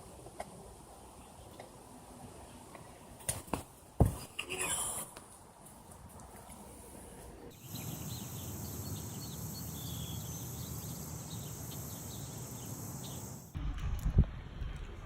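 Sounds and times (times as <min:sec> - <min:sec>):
high bird chirps: 0:07.6 - 0:13.5
insects trilling: 0:07.6 - 0:13.5
low rumble: 0:13.6 - 0:15.0.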